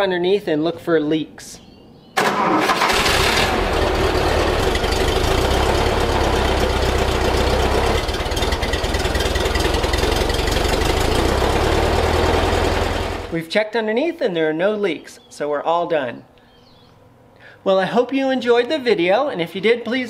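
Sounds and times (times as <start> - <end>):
car engine idling: 2.3 - 13.4.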